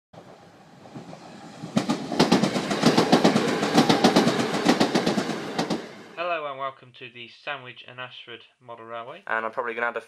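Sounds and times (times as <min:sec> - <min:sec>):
train wheels clattering: 0:00.2 - 0:06.2.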